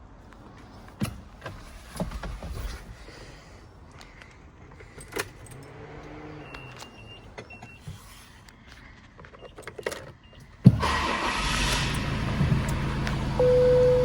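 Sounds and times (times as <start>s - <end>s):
diesel engine starting and running: 10.6s - 14.0s
dashboard beeps: 13.4s - 14.0s.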